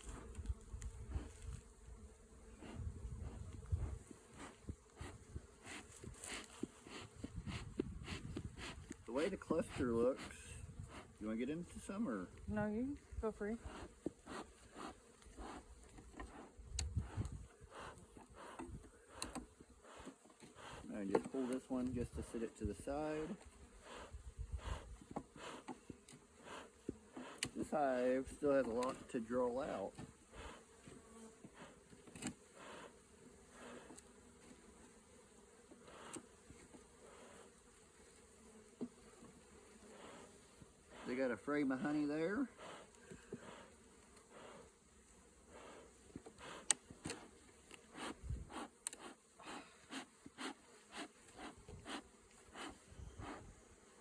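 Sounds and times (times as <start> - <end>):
honeybees buzzing: 0.0 - 54.0
hive equipment clicks: 18.6 - 19.5.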